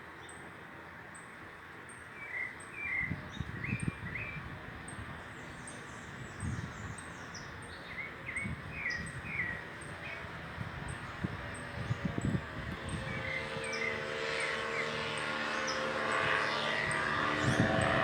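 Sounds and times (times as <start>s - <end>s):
birds chirping: 10.9s - 18.0s.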